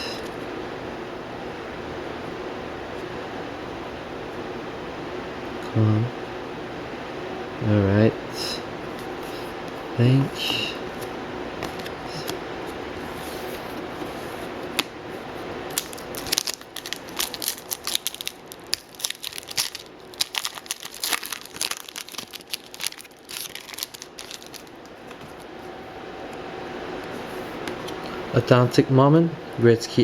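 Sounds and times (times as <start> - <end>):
wrapper crackling: 15.7 - 25.5
wrapper snap: 15.7 - 25.5.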